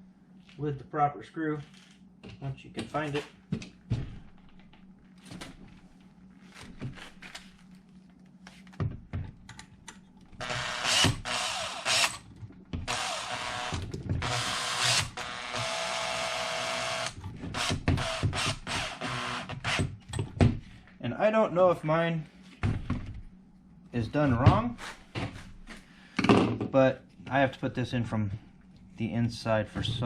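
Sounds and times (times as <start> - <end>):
power screwdriver whirring: 10.4 - 12.2, 12.9 - 19.8.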